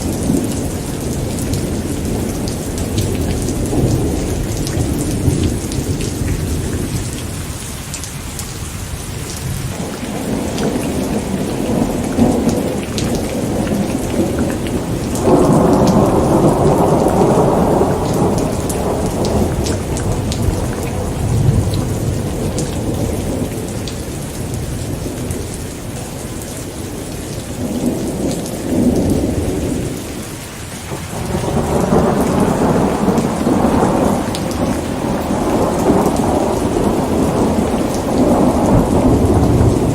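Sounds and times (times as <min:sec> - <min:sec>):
rolling thunder: 0:00.0 - 0:07.5, 0:09.2 - 0:30.2, 0:30.9 - 0:39.9
heavy rain: 0:00.0 - 0:39.9.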